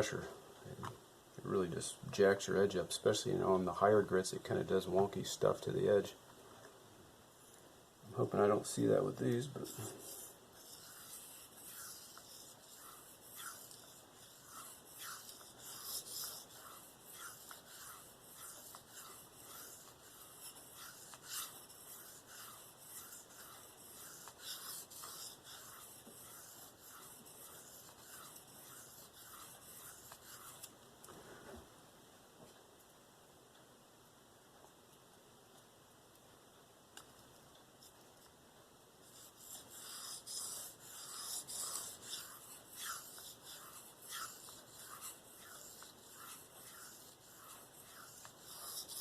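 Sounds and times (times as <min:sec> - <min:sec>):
knife scraping on sharpening stone: 0:09.7 - 0:30.7, 0:39.2 - 0:49.0.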